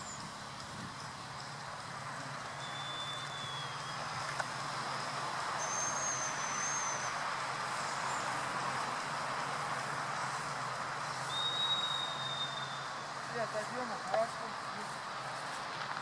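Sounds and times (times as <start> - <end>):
distant traffic hiss: 0.0 - 16.0
high whistle: 2.5 - 4.1, 5.6 - 7.2, 11.3 - 13.0.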